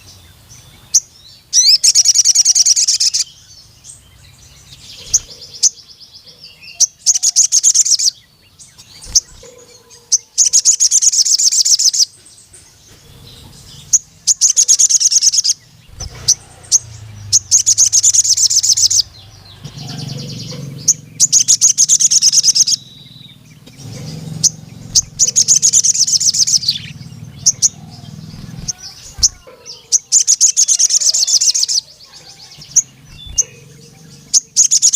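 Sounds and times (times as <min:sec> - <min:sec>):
bird rattling trills: 0:04.7 - 0:05.7, 0:08.7 - 0:34.9.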